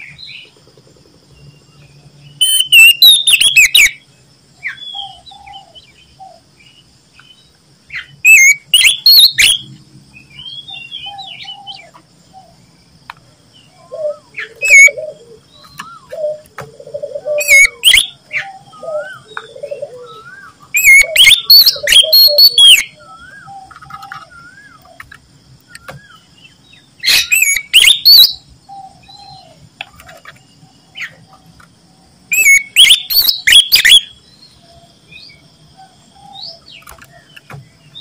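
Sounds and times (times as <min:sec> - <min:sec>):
bird whistled song: 0:02.3 - 0:04.0, 0:04.6 - 0:06.4, 0:08.0 - 0:12.5, 0:13.7 - 0:25.0, 0:25.7 - 0:29.6, 0:32.3 - 0:35.4
soft bird whistles and warbles: 0:02.3 - 0:04.0, 0:08.0 - 0:09.7, 0:13.8 - 0:25.0, 0:27.0 - 0:30.4, 0:32.3 - 0:34.1.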